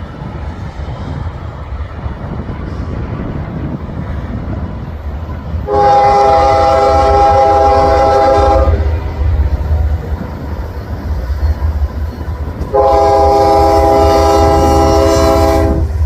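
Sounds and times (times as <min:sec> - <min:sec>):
train rumble: 0:00.0 - 0:16.0
locomotive air horn: 0:05.6 - 0:08.9, 0:12.7 - 0:16.0.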